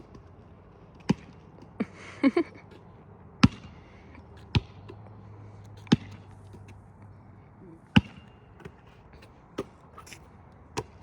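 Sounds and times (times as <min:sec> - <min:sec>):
basketball bouncing: 0:01.0 - 0:01.7, 0:03.4 - 0:03.8, 0:04.4 - 0:05.0, 0:05.8 - 0:06.2, 0:07.9 - 0:08.8, 0:10.7 - 0:11.0.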